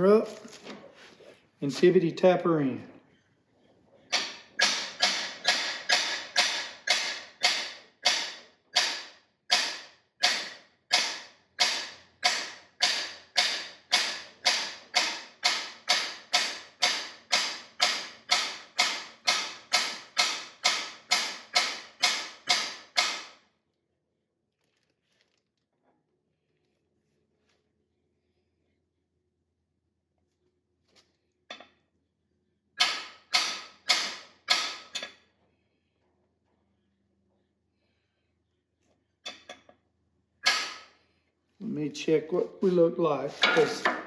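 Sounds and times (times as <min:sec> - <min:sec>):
hammer striking metal: 0:04.2 - 0:23.4.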